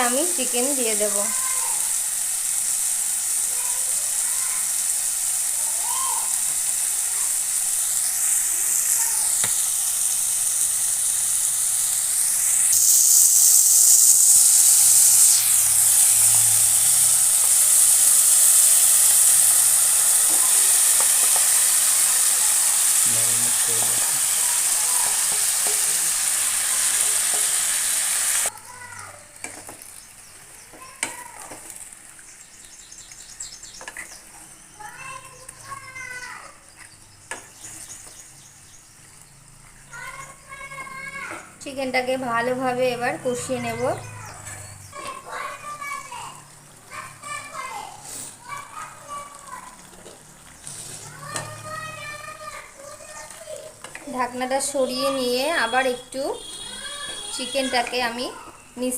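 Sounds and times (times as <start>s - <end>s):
chicken sizzling in hot oil: 0.0s - 58.9s.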